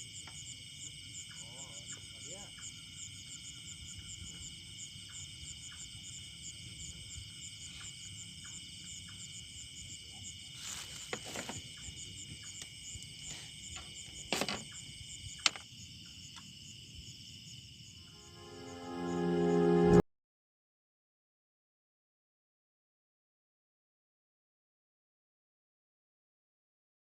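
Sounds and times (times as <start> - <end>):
insects trilling: 0.0 - 19.6.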